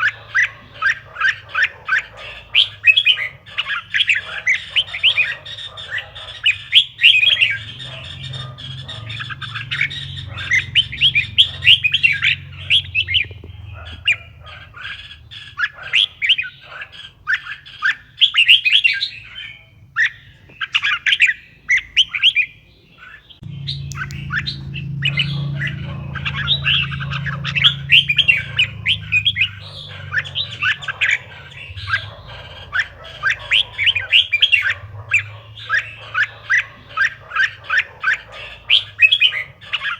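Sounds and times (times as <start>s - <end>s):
bird chirping and warbling: 0.0s - 39.9s
steady low hum: 23.4s - 36.5s.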